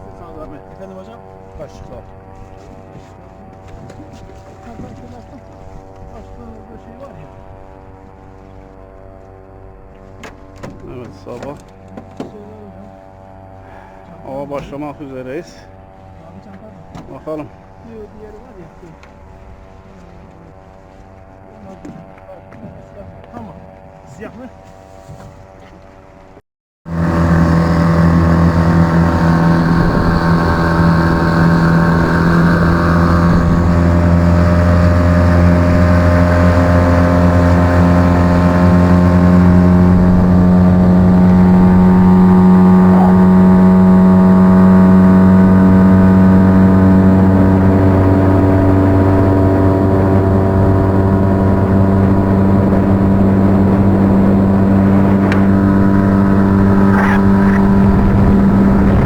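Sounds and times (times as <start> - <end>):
boat motor droning: 0.0 - 24.0, 26.9 - 59.0.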